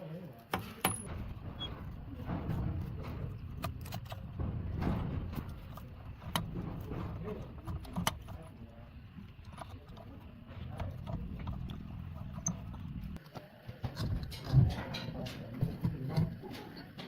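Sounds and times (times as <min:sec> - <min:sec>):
low steady rumble: 0:00.9 - 0:13.2.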